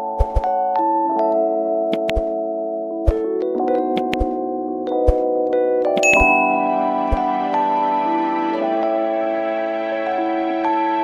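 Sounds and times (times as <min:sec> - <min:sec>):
bell-like chiming music: 0:06.0 - 0:11.0.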